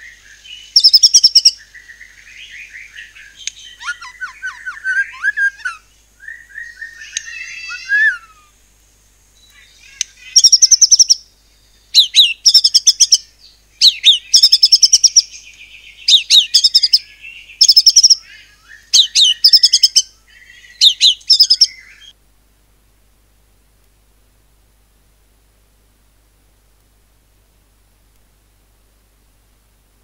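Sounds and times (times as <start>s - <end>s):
songbird singing high phrases: 0.0s - 8.5s, 9.4s - 22.2s.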